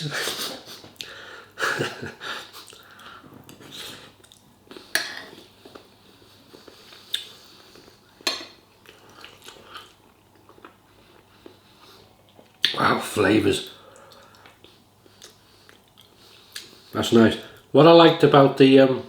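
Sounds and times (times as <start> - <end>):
cutlery clinking on plate: 8.2 - 8.6.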